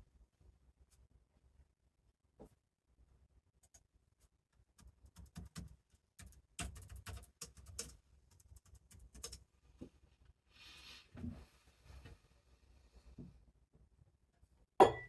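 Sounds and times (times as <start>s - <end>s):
typing on computer keyboard: 4.8s - 9.4s.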